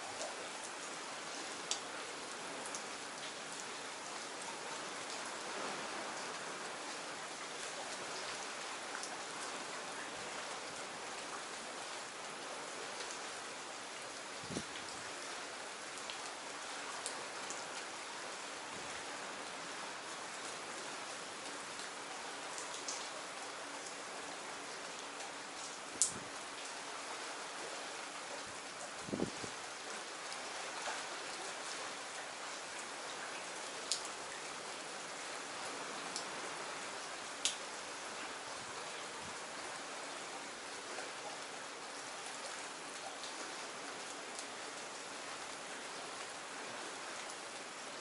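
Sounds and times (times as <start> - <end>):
raindrops ticking on a surface: 0.0 - 48.0
steady rain hiss: 0.0 - 48.0.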